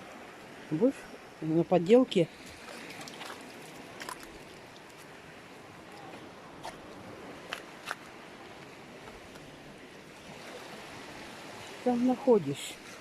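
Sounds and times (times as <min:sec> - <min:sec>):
sea surf on stony shore: 0:00.0 - 0:13.0.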